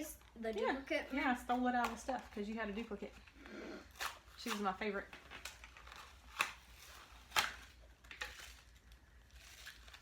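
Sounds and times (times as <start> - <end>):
package snapping: 5.4 - 6.6.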